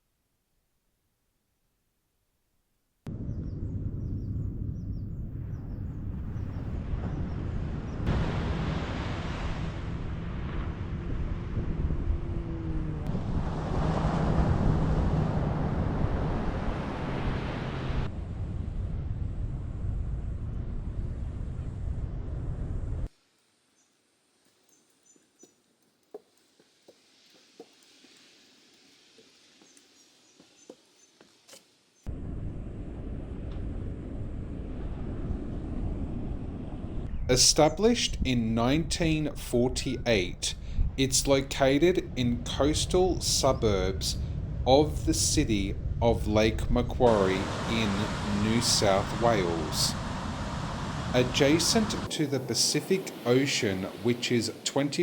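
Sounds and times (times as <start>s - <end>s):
wind buffeting microphone: 3.1s - 23.1s, 32.1s - 54.6s
surf washing on beach: 6.9s - 11.6s, 13.1s - 18.1s, 37.3s - 55.0s.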